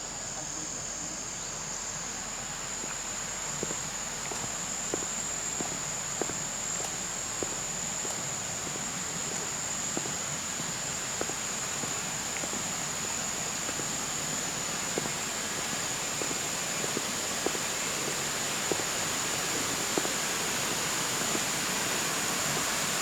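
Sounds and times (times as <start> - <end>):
constant hiss: 0.0 - 23.0
insects droning: 0.0 - 23.0
soft footsteps: 3.6 - 18.9.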